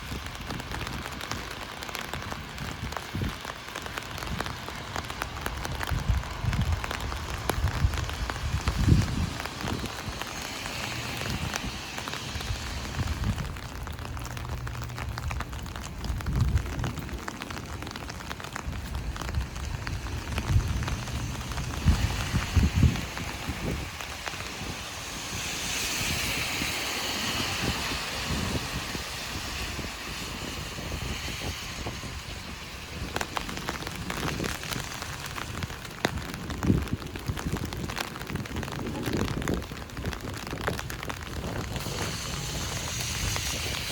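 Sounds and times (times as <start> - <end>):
rain drumming on an umbrella: 0.0 - 43.9.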